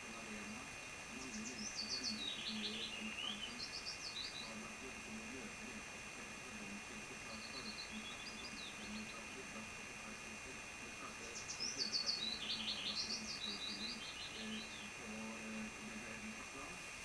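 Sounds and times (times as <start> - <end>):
small bird chirping: 1.1 - 4.6, 7.3 - 9.3, 11.0 - 16.0.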